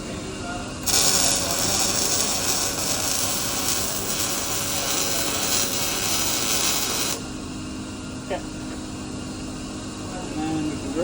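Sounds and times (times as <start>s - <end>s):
welding arc sizzling: 0.8s - 7.4s.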